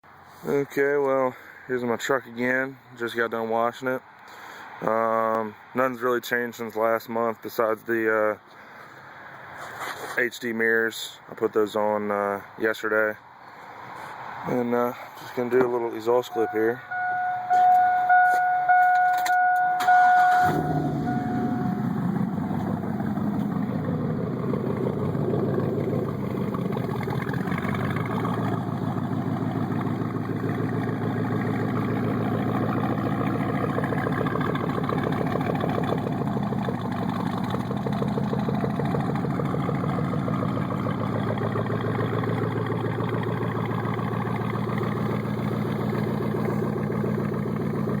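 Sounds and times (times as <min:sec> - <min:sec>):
truck engine starting and idling: 0:14.5 - 0:48.0
steady electronic tone: 0:16.3 - 0:23.3.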